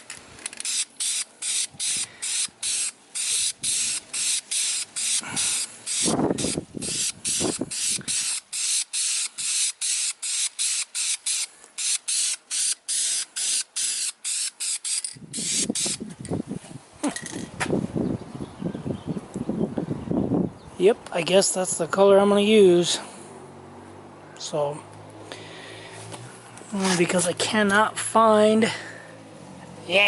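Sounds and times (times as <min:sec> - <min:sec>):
spray paint can hissing: 0:00.5 - 0:16.0.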